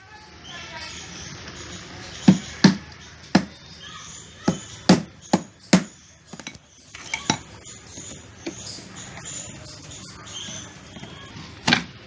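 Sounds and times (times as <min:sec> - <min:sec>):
hard objects knocking and clinking: 0:04.5 - 0:07.5.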